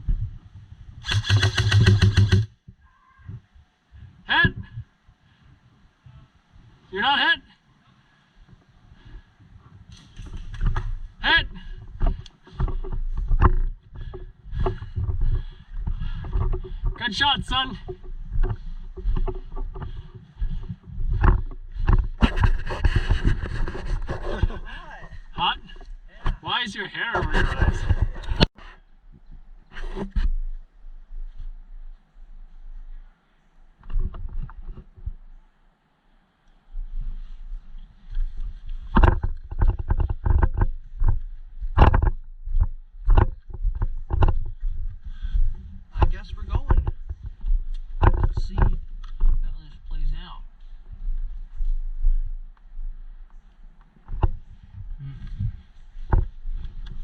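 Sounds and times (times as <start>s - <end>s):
steady low rumble: 8.9s - 26.4s
footsteps crunching on rough ground: 9.6s - 26.4s, 36.7s - 57.0s.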